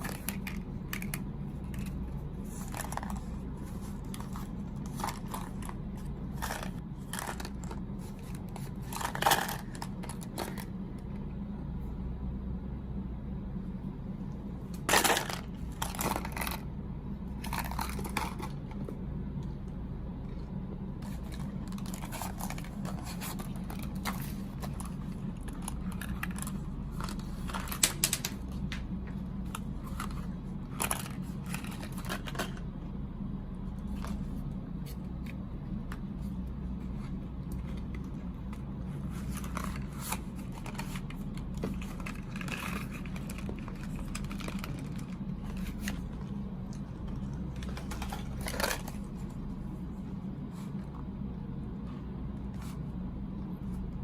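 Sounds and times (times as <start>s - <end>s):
steady low hum: 0.0s - 54.0s
snack packaging crinkling: 37.1s - 49.4s.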